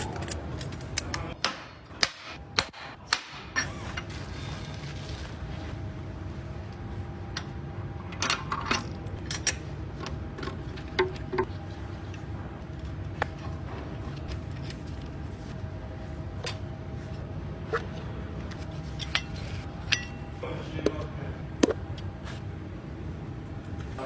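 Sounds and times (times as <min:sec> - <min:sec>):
metal tools clinking: 0:00.0 - 0:01.4, 0:18.5 - 0:20.3
steady low hum: 0:00.0 - 0:24.0.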